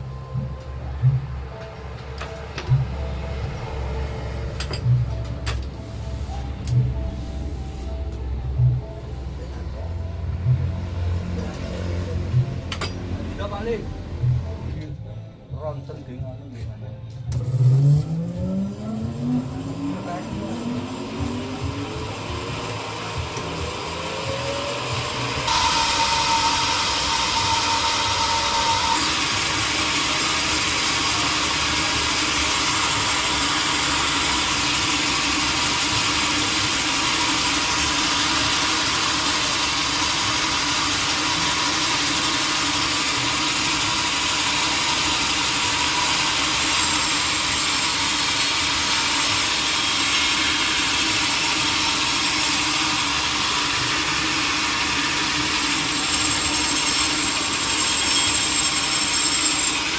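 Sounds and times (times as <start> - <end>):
sawmill saw cutting through log: 17.4 - 59.9.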